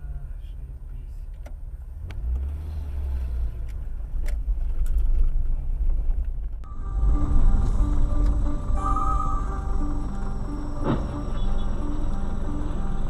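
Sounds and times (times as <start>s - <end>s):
car engine and road rumble: 0.0s - 13.0s
music with held tones: 6.7s - 13.0s.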